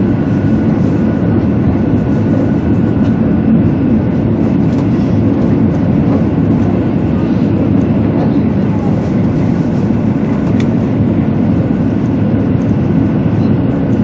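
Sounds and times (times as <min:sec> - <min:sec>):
train running noise rumbling: 0:00.0 - 0:14.0.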